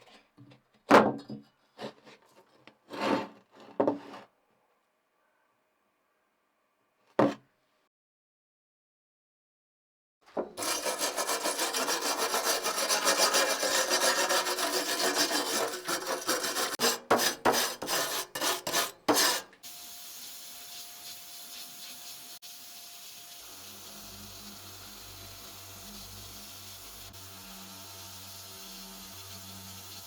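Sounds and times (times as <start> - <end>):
abrading strokes on a surface: 10.6 - 19.5.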